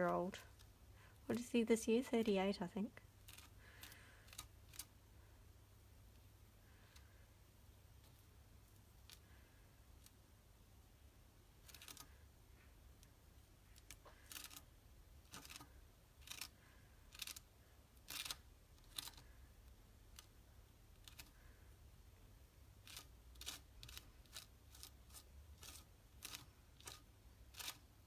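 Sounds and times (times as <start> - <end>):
craft tool stroking paper: 22.8 - 27.9.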